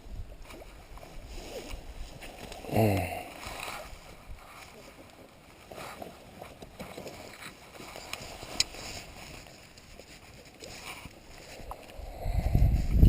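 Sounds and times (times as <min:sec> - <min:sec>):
wind buffeting microphone: 0:11.9 - 0:13.0.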